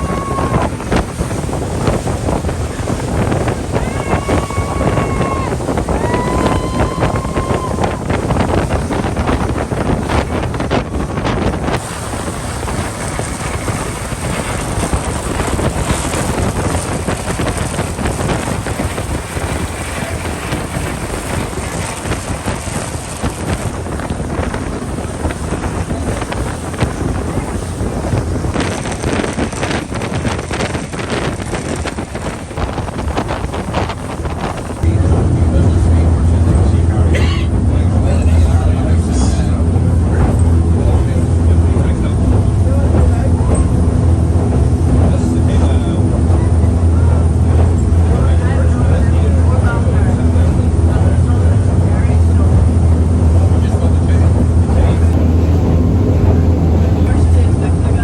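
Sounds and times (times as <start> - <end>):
boat engines droning: 0.0 - 58.0
hull through water: 0.0 - 58.0
wind buffeting microphone: 0.0 - 58.0.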